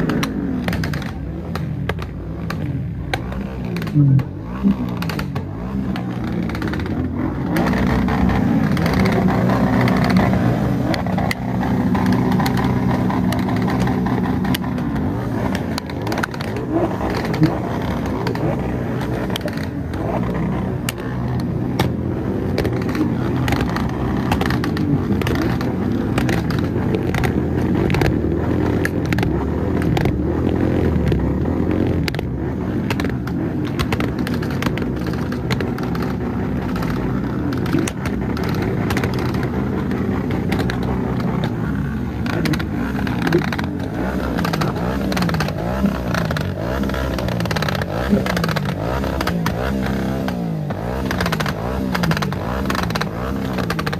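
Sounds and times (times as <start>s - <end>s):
exhaust crackles: 0.0s - 53.9s
motorcycle engine running: 0.0s - 53.9s.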